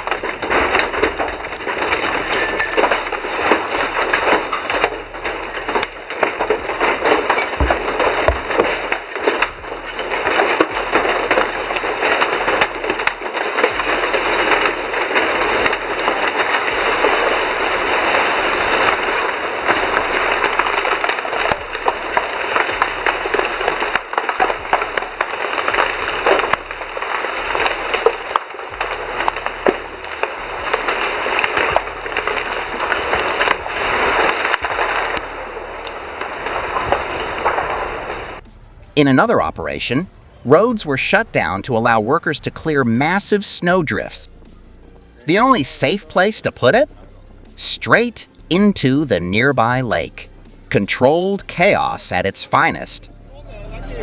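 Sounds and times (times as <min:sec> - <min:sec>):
rocks knocking together: 0:00.0 - 0:38.6
wood splintering: 0:00.0 - 0:53.1.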